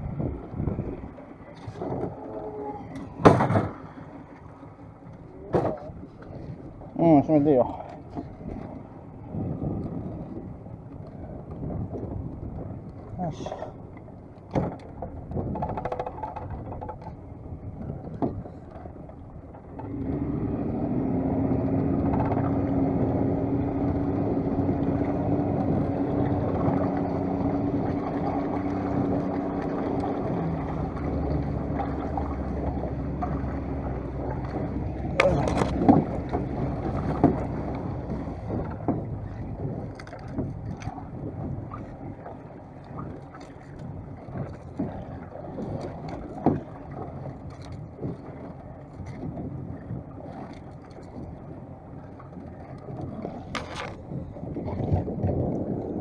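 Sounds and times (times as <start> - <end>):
wind noise: 0.0 - 3.9, 8.4 - 13.7, 52.8 - 56.0
boat engine running: 0.0 - 56.0
water noise: 0.0 - 56.0.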